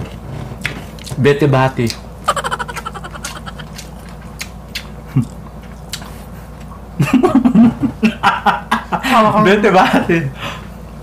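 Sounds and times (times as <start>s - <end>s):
chewing fried chicken: 0.1s - 7.0s
mouth clicks: 1.9s - 4.9s
woman laughing: 2.3s - 3.8s.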